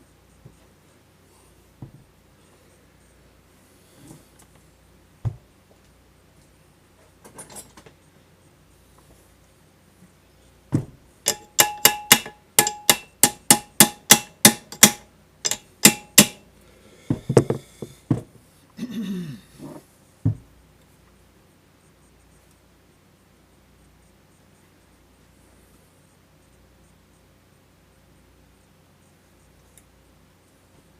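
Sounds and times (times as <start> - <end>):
hammer striking metal: 11.3 - 16.4.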